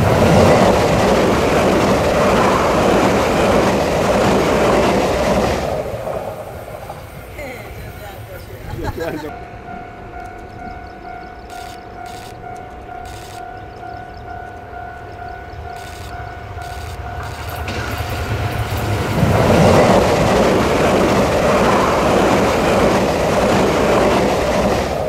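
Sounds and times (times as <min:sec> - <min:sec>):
train passing on rails: 0:00.0 - 0:25.0
level crossing warning tone: 0:09.3 - 0:18.8.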